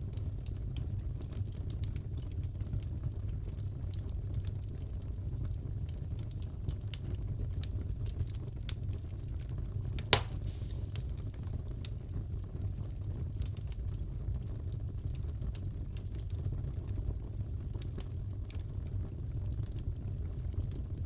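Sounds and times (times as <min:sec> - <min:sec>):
wood fire crackling: 0:00.0 - 0:21.0
loud fire pop: 0:10.0 - 0:11.3.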